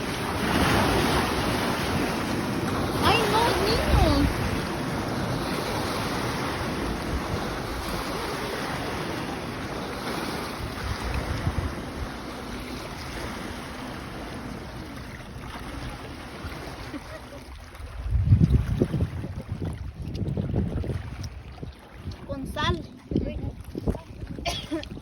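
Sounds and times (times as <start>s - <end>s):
wind buffeting microphone: 0.0s - 14.6s, 17.6s - 25.0s
sea surf washing: 0.0s - 19.3s.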